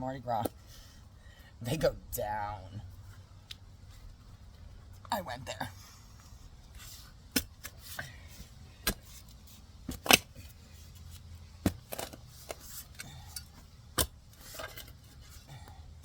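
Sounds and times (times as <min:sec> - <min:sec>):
shovel digging in soil: 0:05.8 - 0:15.4.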